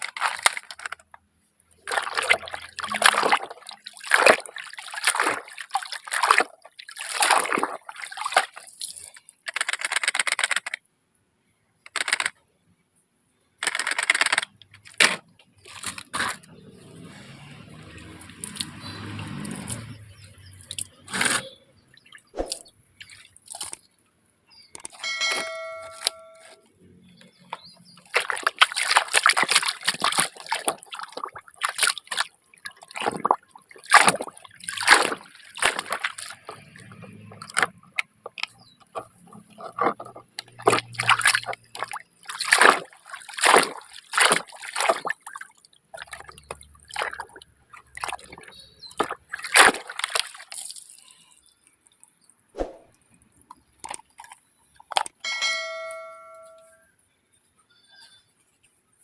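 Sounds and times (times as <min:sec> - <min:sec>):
water splashing and sloshing: 0:00.0 - 0:10.7, 0:13.7 - 0:24.0, 0:24.7 - 0:56.8
short electronic beep: 0:25.0 - 0:26.6.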